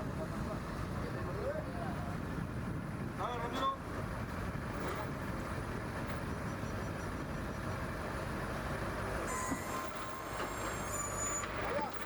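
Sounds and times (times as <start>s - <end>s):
heavy machinery rumbling: 0.0s - 12.0s
faint high whining tones: 9.3s - 12.0s.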